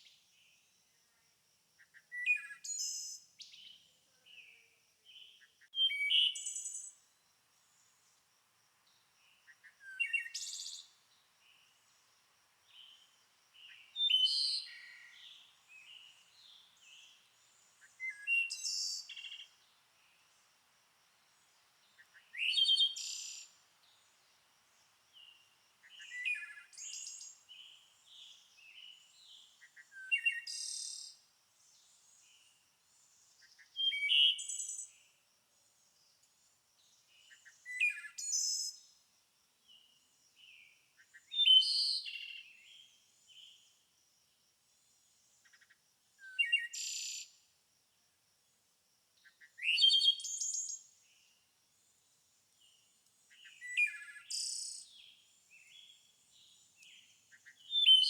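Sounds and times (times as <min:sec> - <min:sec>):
songbirds chirping and trilling: 0:08.8 - 0:35.1.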